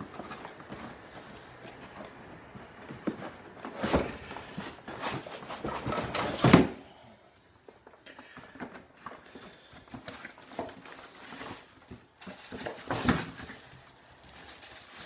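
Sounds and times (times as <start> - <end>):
packaging rustling: 0.0 - 6.8, 9.0 - 15.0.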